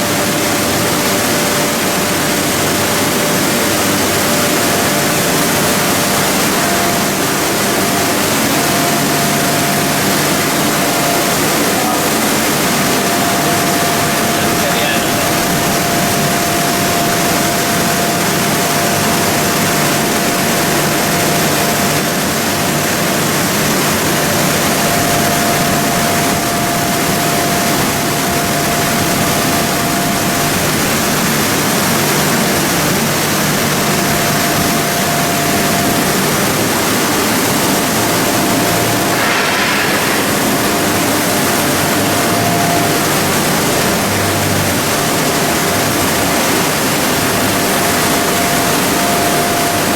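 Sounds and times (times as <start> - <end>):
high machine whine: 0.0 - 49.9
machinery mechanical rush: 0.0 - 49.9
brief hiss: 39.1 - 41.3.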